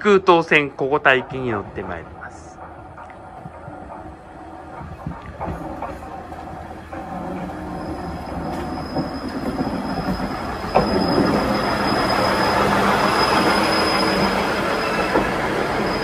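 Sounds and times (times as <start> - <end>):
train wheels squealing: 0.3 - 16.0.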